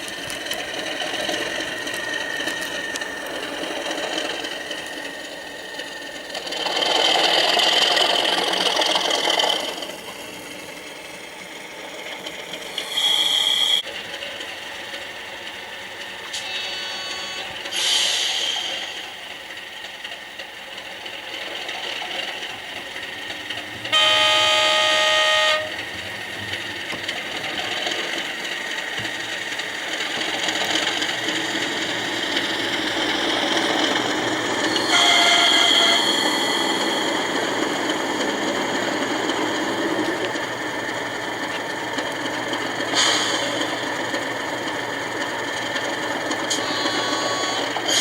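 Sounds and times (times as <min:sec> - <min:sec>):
model locomotive engine sound: 0:00.0 - 0:48.0
loud horn blast: 0:23.8 - 0:26.1, 0:34.9 - 0:36.2
higher horn note: 0:23.9 - 0:25.8, 0:34.9 - 0:36.1.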